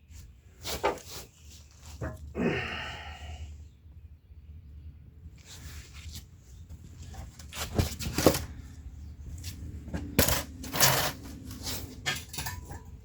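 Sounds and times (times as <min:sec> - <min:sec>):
metal jack clinking and clanking: 0:10.2 - 0:11.3, 0:12.0 - 0:13.0
metal scrape: 0:10.2 - 0:12.9.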